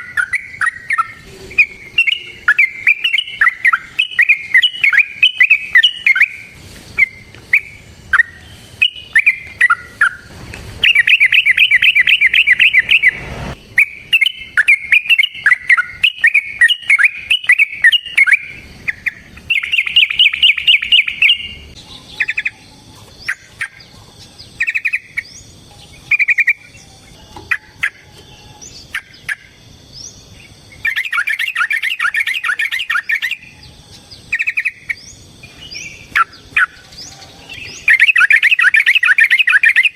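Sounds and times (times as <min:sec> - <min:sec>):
bird fast rattling trills: 0:00.0 - 0:23.9, 0:34.3 - 0:39.9
bulbul chattering song: 0:00.0 - 0:39.9.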